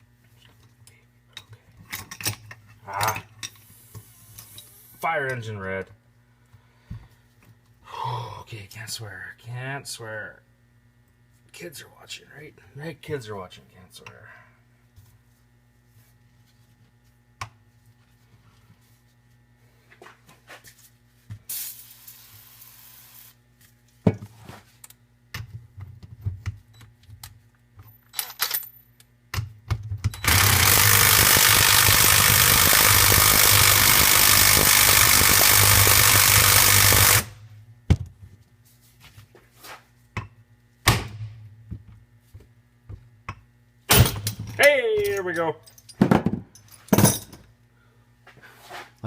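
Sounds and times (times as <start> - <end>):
cordless power tool running: 30.2 - 37.4.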